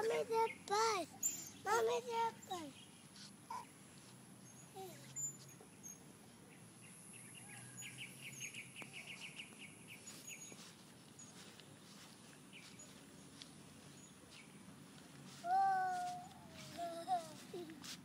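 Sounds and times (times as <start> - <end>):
bird chirping: 4.4 - 11.5.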